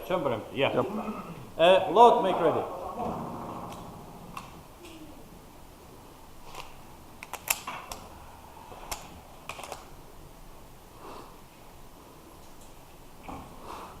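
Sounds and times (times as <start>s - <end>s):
pistol clicks and clacks: 6.5s - 8.0s, 8.9s - 9.9s.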